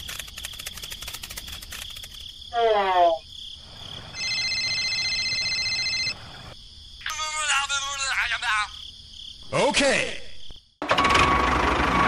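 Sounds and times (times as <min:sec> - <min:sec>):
crickets chirping: 0:00.0 - 0:10.8
steady electronic phone tone: 0:04.2 - 0:06.2.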